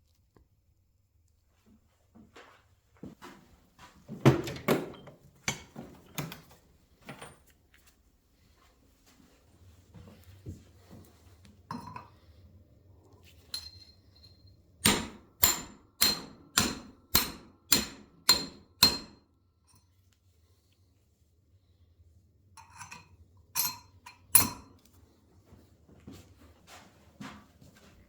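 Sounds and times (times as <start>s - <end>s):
metal tool striking metal: 14.8s - 19.2s, 23.6s - 24.7s.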